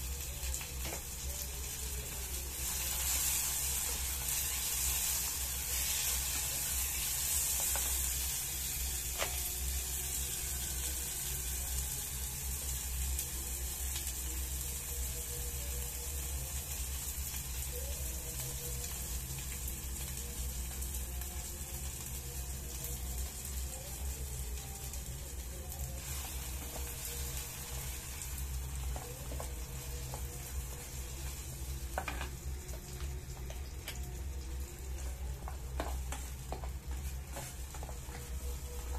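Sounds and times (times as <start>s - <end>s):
vegetables sizzling in frying pan: 0.0s - 38.9s
spatula stirring and scraping: 35.4s - 38.9s.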